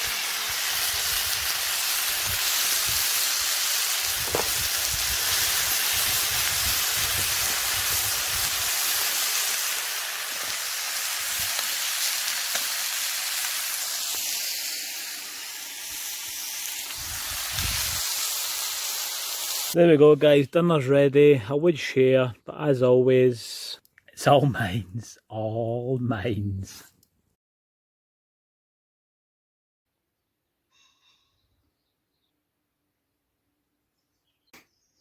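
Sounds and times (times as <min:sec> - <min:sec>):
food sizzling in a pan: 0:00.0 - 0:19.8.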